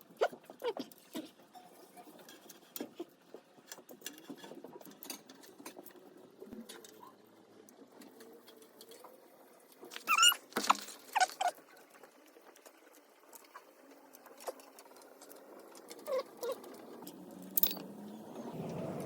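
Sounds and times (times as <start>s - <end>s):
squeaky chirps: 10.0s - 10.4s.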